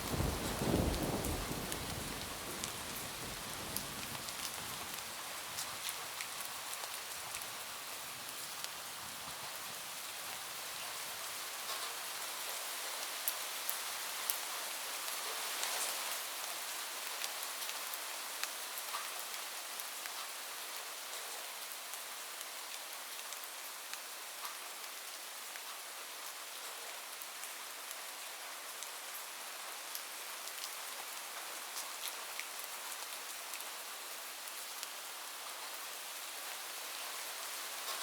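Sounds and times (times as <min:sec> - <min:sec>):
low thunder rumble: 0:00.0 - 0:04.2
heavy rain on a roof: 0:00.0 - 0:38.0.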